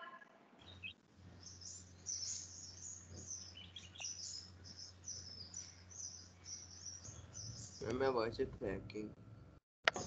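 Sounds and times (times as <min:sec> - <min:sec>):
low steady hum: 0:00.0 - 0:10.0
small birds chirping: 0:00.6 - 0:08.4.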